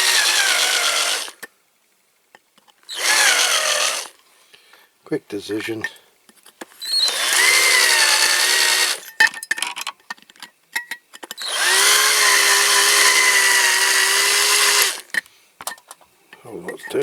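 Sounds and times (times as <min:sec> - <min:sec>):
cordless drill whining: 0:00.0 - 0:01.5, 0:02.9 - 0:04.2, 0:06.8 - 0:09.1, 0:11.4 - 0:15.2
drill clicks: 0:00.0 - 0:01.5, 0:02.9 - 0:04.2, 0:06.8 - 0:09.1, 0:11.3 - 0:15.3.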